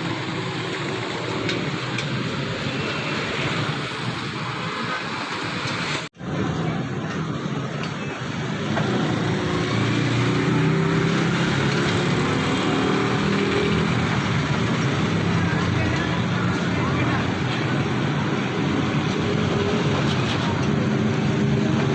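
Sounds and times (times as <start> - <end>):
street traffic noise: 0.0 - 21.9.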